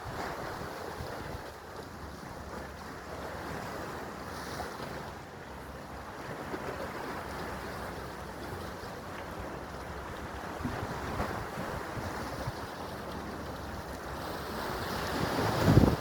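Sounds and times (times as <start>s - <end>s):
sea waves washing: 0.0s - 16.0s
wind buffeting microphone: 9.9s - 16.0s.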